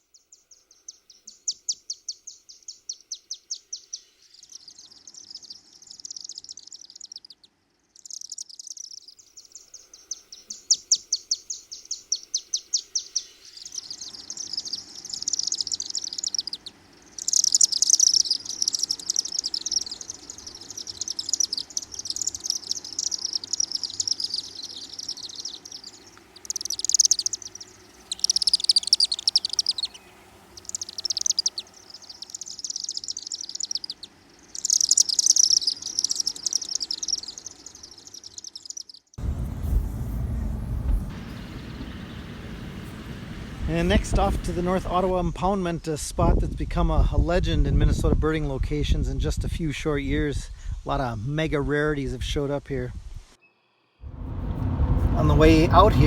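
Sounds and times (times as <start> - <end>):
swifts chittering: 0.0 - 45.2, 53.6 - 56.0
low background rumble: 39.2 - 45.6, 54.0 - 56.0.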